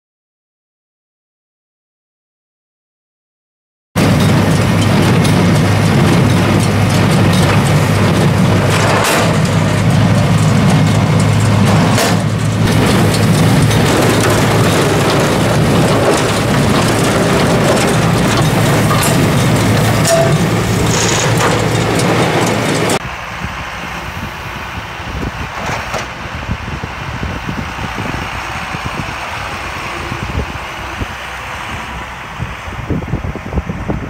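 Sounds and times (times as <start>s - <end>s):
baler mechanism clattering: 4.0s - 23.0s
tractor engine drone: 4.0s - 34.0s.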